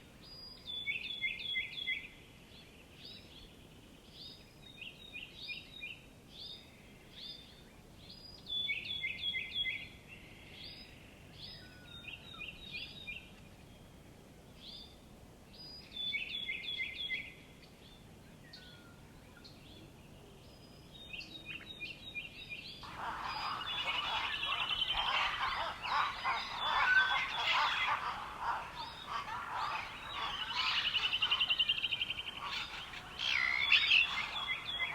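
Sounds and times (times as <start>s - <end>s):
dense bird chorus: 17.9s - 34.9s.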